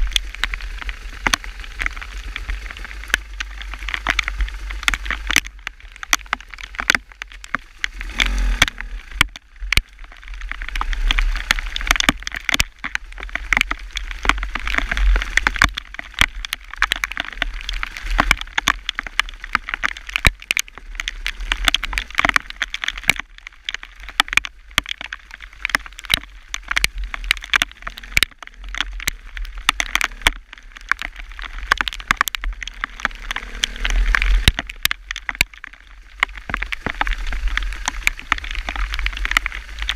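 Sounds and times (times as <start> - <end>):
wind rumble on microphone: 0.0 - 39.9
steady hiss: 7.3 - 11.8.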